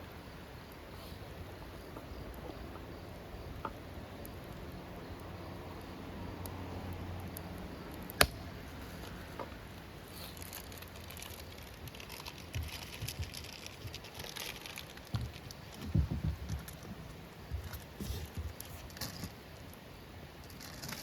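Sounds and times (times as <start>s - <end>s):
wood fire crackling: 6.4s - 19.0s.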